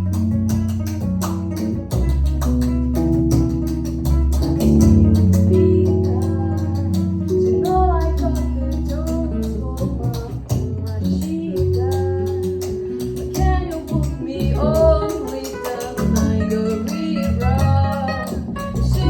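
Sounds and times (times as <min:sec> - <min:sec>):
live band playing: 0:00.0 - 0:19.0
person singing: 0:05.5 - 0:19.0.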